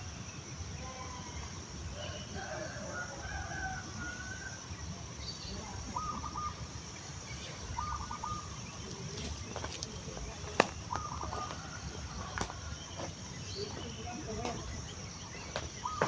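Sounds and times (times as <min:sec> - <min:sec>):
rooster crowing: 0:02.0 - 0:04.6, 0:11.0 - 0:12.8
chickens clucking: 0:07.3 - 0:13.1.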